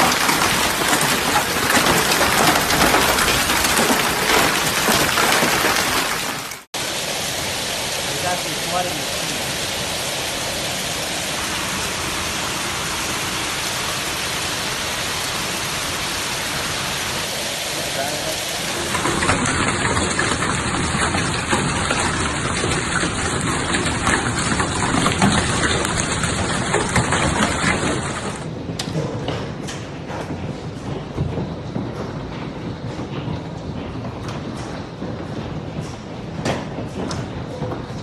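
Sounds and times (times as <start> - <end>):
hailstones striking hard surfaces: 0.0 - 6.7, 18.0 - 28.5
heavy rain hissing: 0.0 - 28.5.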